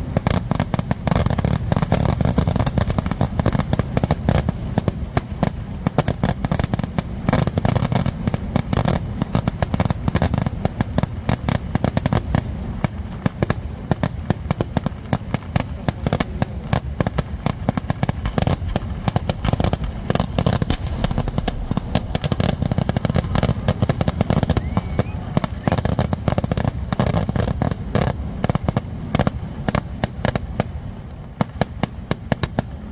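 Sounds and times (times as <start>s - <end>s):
rapid fireworks bangs: 0.0s - 32.9s
heavy low booming: 15.8s - 25.8s.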